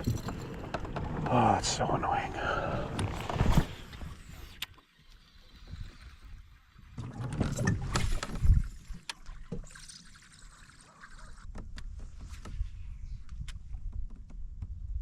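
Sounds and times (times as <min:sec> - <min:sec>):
knocks and scraping on kayak: 0:00.0 - 0:04.6, 0:11.4 - 0:15.0.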